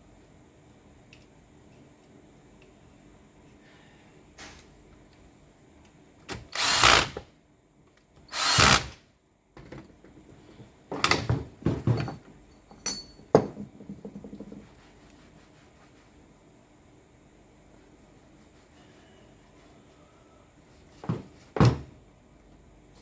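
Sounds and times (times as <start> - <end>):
electric demolition hammer bursts: 6.6 - 7.2, 8.3 - 9.0.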